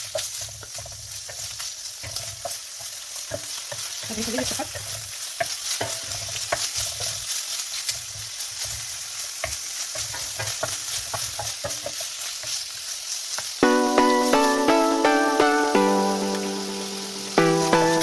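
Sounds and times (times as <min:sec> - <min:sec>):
seafood sizzling in hot oil: 0:00.0 - 0:18.0
plucked-string music: 0:13.6 - 0:18.0.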